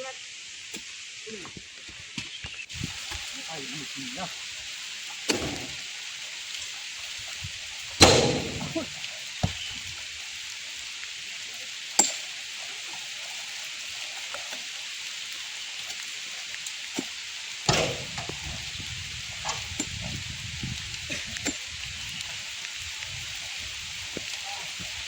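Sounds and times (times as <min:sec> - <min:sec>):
rain hissing: 0:00.0 - 0:25.0
loud thud: 0:08.0 - 0:09.6, 0:17.7 - 0:18.4.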